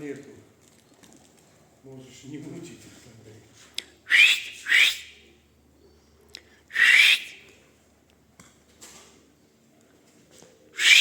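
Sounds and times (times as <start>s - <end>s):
person whistling: 4.1s - 5.2s, 6.7s - 7.4s, 10.8s - 11.0s.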